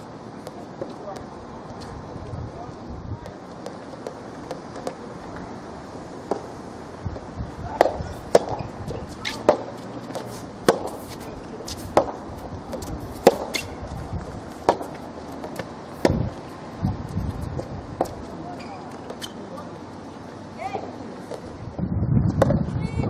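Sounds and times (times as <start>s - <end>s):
rackets hitting tennis ball: 3.2s - 5.5s, 6.2s - 6.6s, 7.7s - 16.7s, 17.3s - 19.7s.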